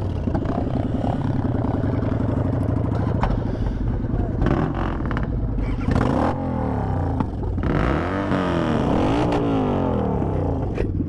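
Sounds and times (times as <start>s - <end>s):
vehicle engine revving: 4.2s - 11.0s.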